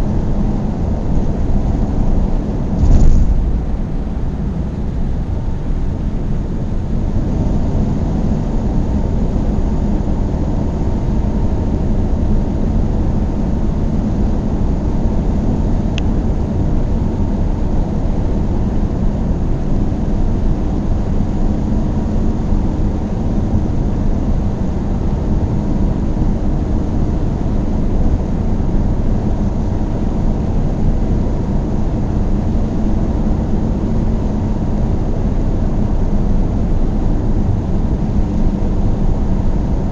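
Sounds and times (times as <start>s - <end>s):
car engine and tyre noise: 0.2s - 7.4s
faint low hum: 2.6s - 5.4s.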